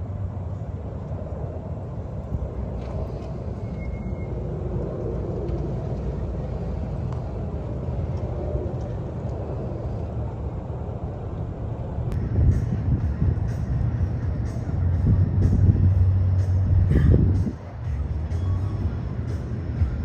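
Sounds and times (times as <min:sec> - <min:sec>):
vehicle engines rumbling: 0:00.0 - 0:20.0.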